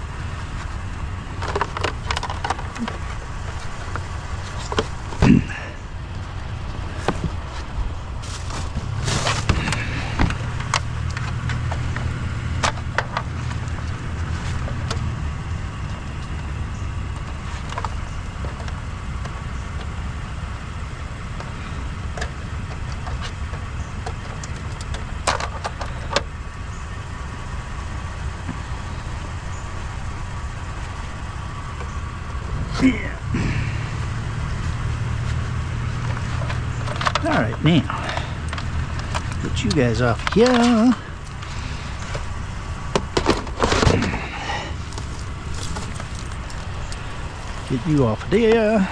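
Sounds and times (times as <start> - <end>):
car engine idling: 0.0 - 48.9
objects clunking and knocking: 1.3 - 6.3, 6.9 - 15.1, 21.4 - 26.4, 34.6 - 48.4.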